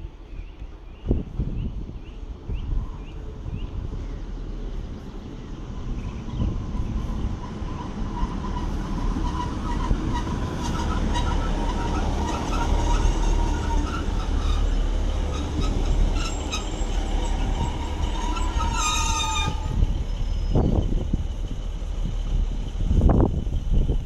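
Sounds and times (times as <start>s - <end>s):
rumble of wheels and engine: 0.0s - 24.0s
brake squeal: 5.8s - 21.1s.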